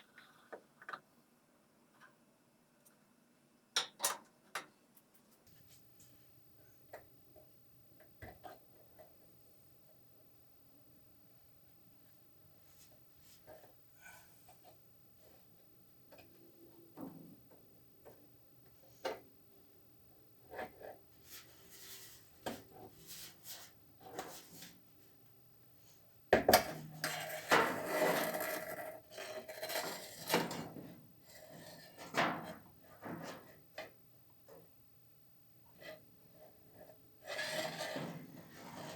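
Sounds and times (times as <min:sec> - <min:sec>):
parts clattering and scraping: 0:26.5 - 0:33.6, 0:37.2 - 0:38.9.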